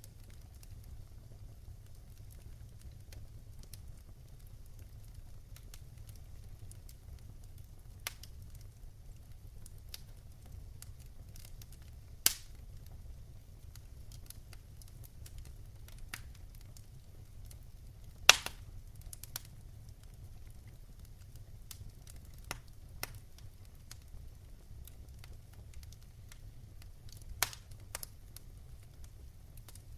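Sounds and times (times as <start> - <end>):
wood fire crackling: 0.0 - 29.9.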